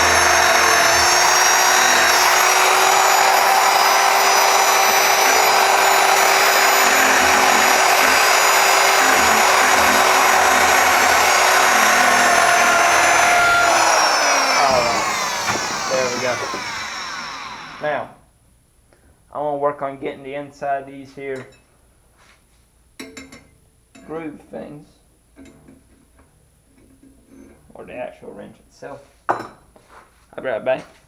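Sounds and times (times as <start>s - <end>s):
power tool grinding metal: 0.0s - 17.9s.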